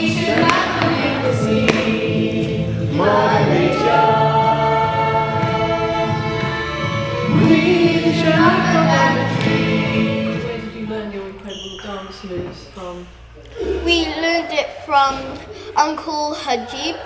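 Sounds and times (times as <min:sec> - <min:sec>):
choir of young voices singing: 0:00.0 - 0:11.8.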